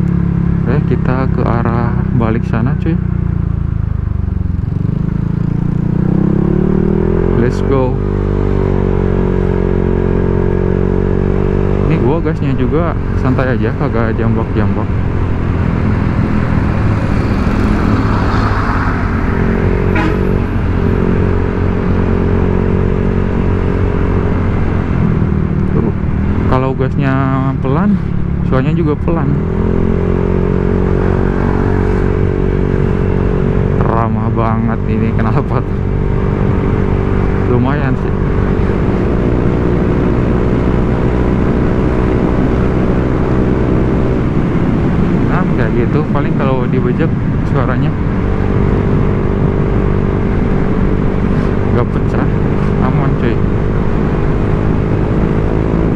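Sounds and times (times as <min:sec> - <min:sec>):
scooter engine running: 0:03.0 - 0:07.5, 0:14.0 - 0:26.5.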